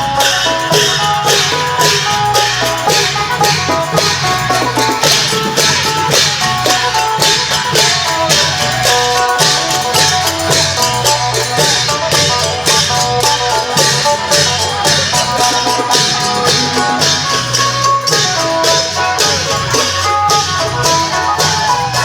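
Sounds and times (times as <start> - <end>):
drums and cymbals beat: 0.0 - 22.0
plucked lute melody: 12.0 - 19.2.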